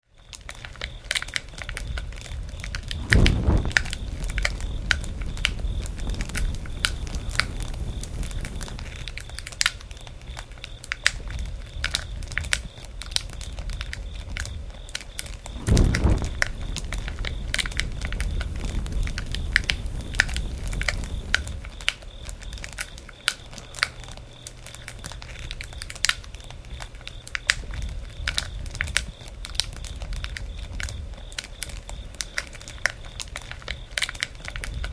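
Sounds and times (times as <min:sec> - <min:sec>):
low rushes of flames: 0:02.9 - 0:09.7, 0:15.5 - 0:21.8
campfire crackling and popping: 0:03.0 - 0:09.7, 0:15.5 - 0:21.8.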